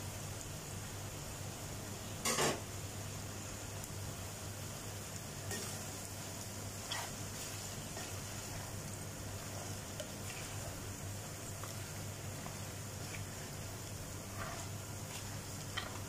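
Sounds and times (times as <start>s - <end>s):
chicken sizzling in oil: 0.0s - 16.0s
faint stirring clicks: 6.9s - 16.0s.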